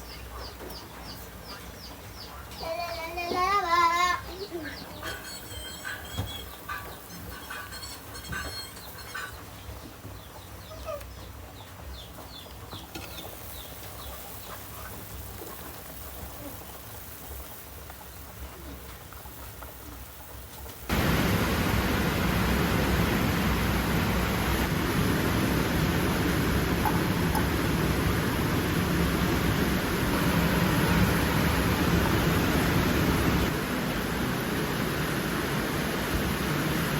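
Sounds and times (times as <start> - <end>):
heavy rain hissing: 20.9 - 36.9.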